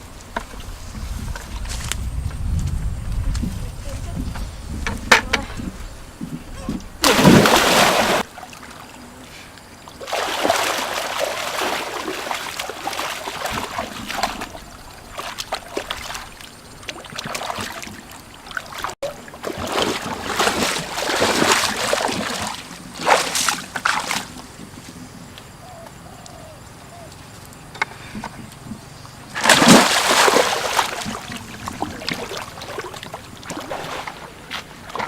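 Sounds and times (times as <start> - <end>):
water splashing and sloshing: 6.2 - 25.0, 29.2 - 35.0.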